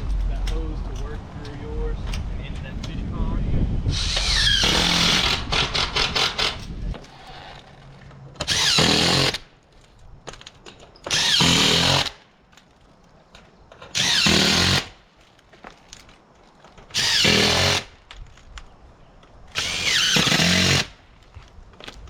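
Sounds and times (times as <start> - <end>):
power drill bursts: 3.9 - 6.6, 8.4 - 9.4, 11.0 - 12.2, 13.9 - 15.0, 16.9 - 17.9, 19.6 - 21.0.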